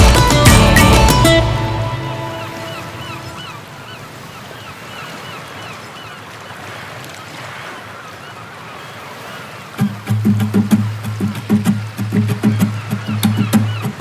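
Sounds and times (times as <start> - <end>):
background music: 0.0 - 3.5
seabird calls: 0.0 - 14.0
surf waves: 0.0 - 14.0.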